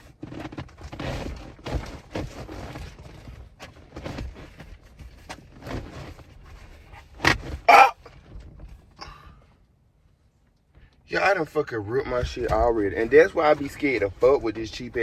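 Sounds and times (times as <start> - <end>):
fabric rustling and scraping: 0.0 - 8.8.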